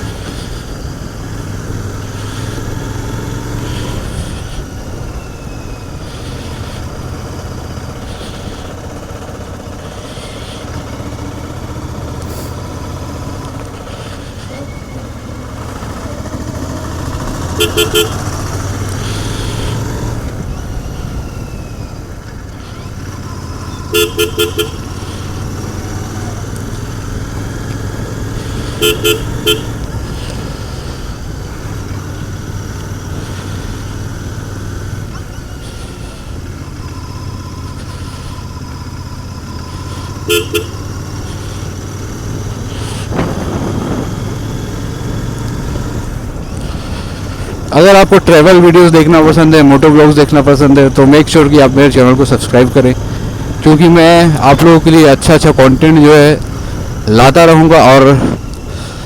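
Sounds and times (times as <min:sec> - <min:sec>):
motorcycle engine running: 0:00.0 - 0:59.0
horn short toots: 0:15.9 - 0:19.9, 0:23.7 - 0:26.4, 0:28.4 - 0:30.4, 0:39.6 - 0:42.3.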